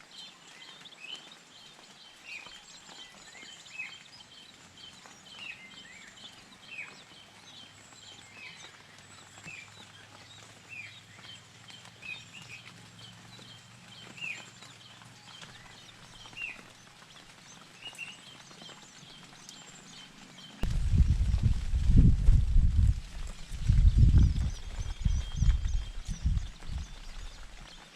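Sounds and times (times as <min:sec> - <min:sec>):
faint bird chirping: 0:23.6 - 0:27.9.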